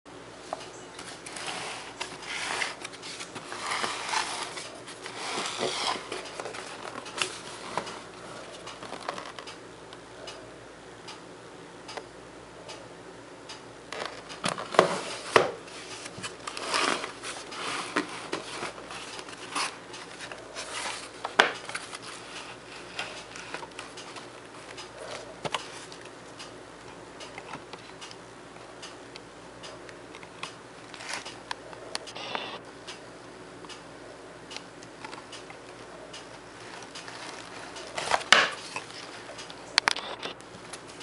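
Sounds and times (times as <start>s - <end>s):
paper rustling: 1.0s - 9.5s, 14.0s - 24.2s.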